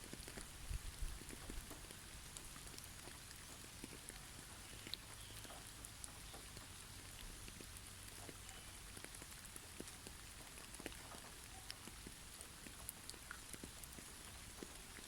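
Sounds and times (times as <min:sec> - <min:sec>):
falling snow and drips patter: 0:00.0 - 0:15.0
faint bird chirps: 0:04.6 - 0:05.6, 0:08.4 - 0:08.8.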